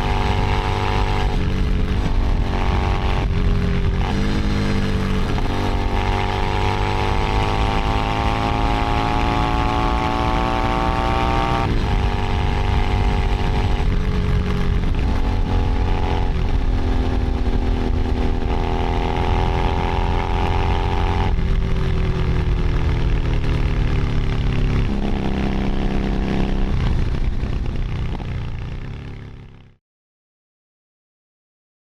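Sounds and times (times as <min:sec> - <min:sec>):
motorcycle engine with racing exhaust: 0:00.0 - 0:29.8.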